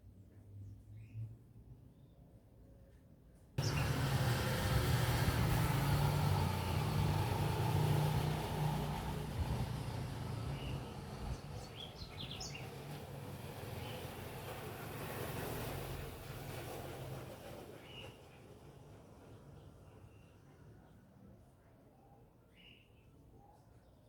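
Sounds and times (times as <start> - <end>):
vehicle engine running: 3.6 - 14.0.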